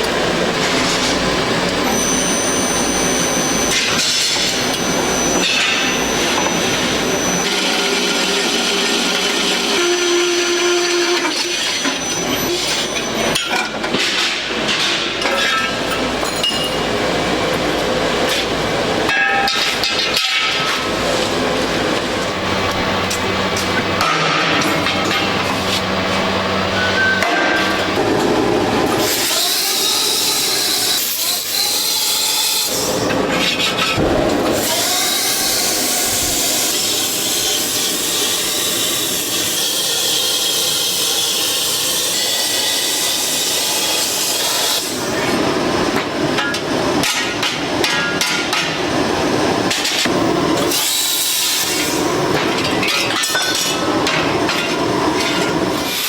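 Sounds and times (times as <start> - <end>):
hissing grinding sound: 0.7 - 13.1.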